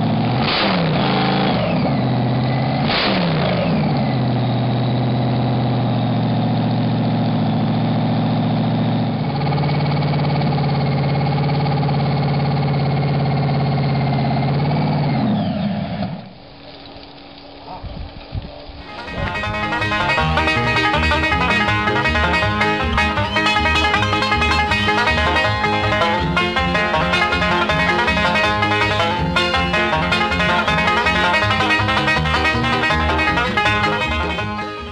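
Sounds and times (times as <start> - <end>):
car engine idling: 18.8 - 34.9
engine throttle blip: 18.8 - 34.9
high whine: 18.8 - 34.9.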